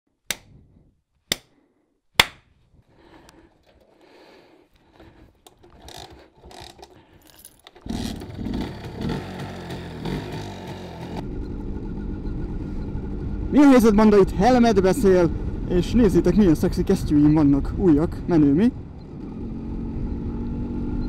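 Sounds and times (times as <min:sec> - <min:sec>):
sharp snap: 0:00.3 - 0:00.5, 0:02.2 - 0:02.5
rustling and clicking handling: 0:03.1 - 0:07.9
two-stroke motorcycle engine running: 0:07.8 - 0:13.5.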